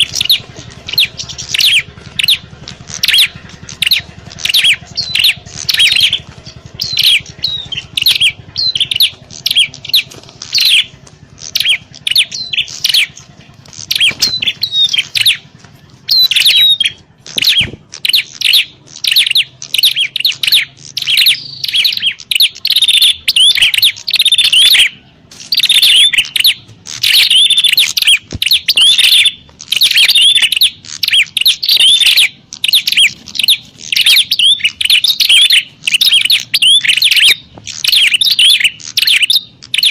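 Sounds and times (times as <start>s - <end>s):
birds chirping rapidly: 0.0s - 39.9s.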